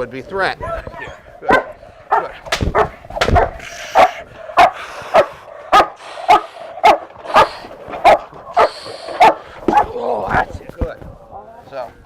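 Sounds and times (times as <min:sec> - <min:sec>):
dog barking hard: 0:00.6 - 0:10.0.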